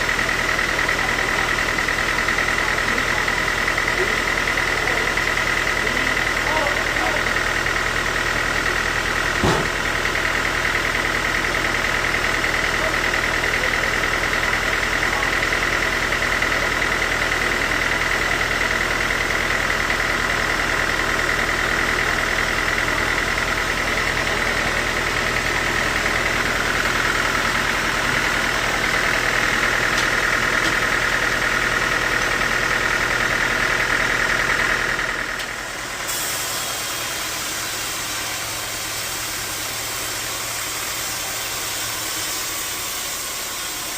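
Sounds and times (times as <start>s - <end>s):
bandsaw whining over low hum: 15.6s - 43.9s.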